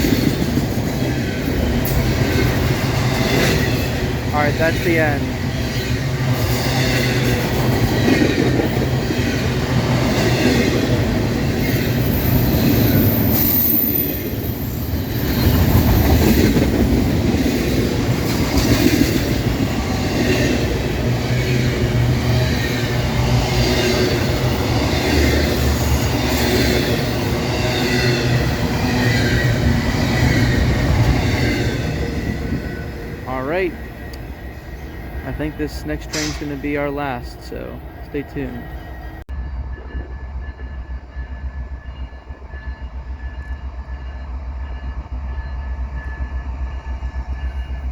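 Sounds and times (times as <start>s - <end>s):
freight train rumbling past: 0.0s - 47.9s
high wheel squeal: 11.6s - 16.2s.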